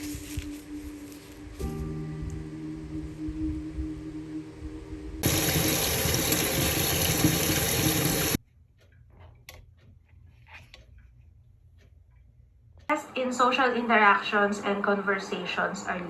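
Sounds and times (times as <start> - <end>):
water running from tap: 5.2 - 8.4.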